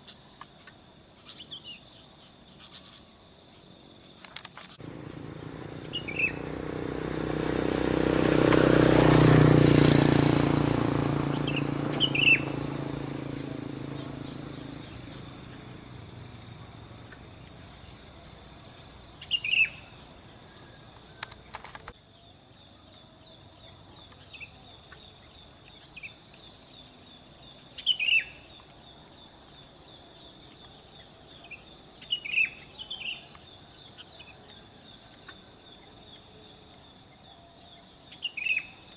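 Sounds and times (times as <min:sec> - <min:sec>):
bird chirping: 0:00.0 - 0:03.3, 0:04.0 - 0:22.3, 0:27.1 - 0:28.6, 0:30.9 - 0:34.7, 0:37.7 - 0:38.9
insects trilling: 0:00.0 - 0:38.9
motor vehicle passing: 0:04.8 - 0:21.6.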